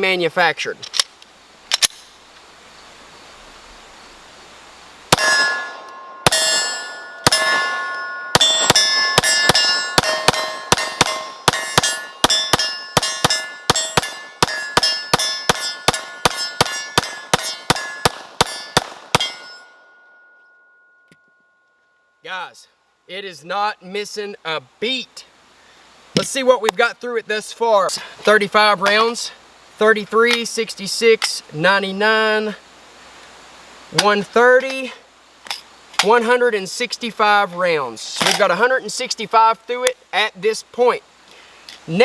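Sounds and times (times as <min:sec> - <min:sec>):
bullets ringing on steel target: 0:05.1 - 0:21.3
pistol shots: 0:07.3 - 0:19.5.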